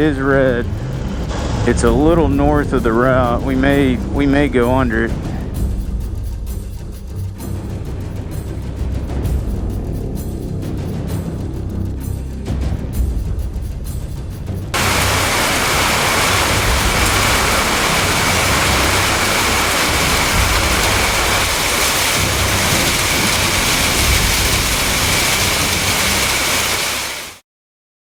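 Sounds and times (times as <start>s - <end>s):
heavy rain pouring: 0.0s - 5.7s, 14.8s - 27.4s.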